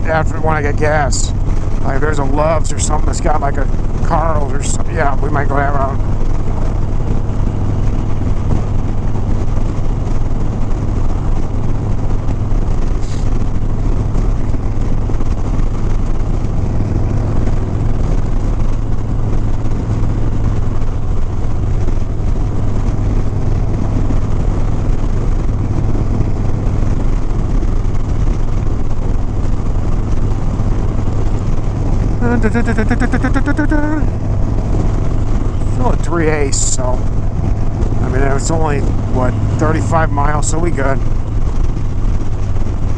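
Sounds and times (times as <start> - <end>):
motorcycle engine cruising: 0.0 - 42.9
wind noise on microphone: 0.0 - 42.9.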